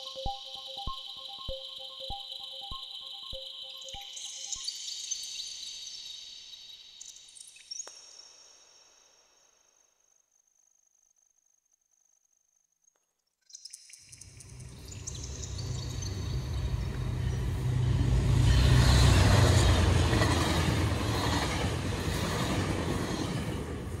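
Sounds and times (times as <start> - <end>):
train passing with rail noise: 14.3 - 24.0.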